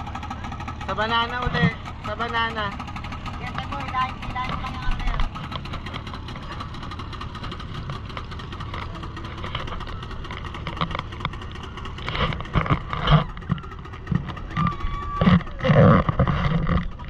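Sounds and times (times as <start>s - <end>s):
motorboat engine running: 0.0s - 17.0s.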